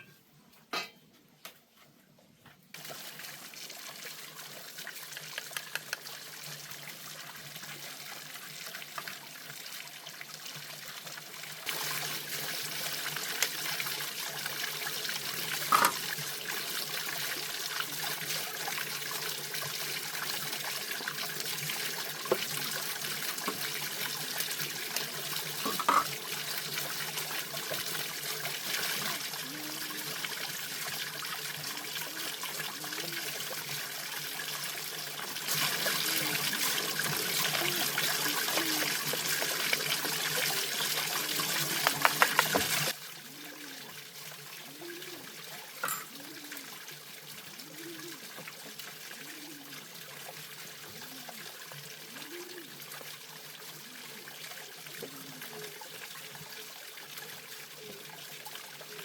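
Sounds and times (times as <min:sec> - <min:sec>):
water trickling: 0:02.8 - 0:59.0.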